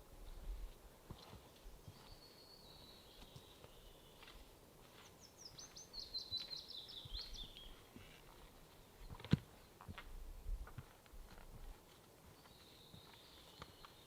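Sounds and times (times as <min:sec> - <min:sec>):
songbird singing: 0:01.2 - 0:08.1, 0:12.2 - 0:14.0.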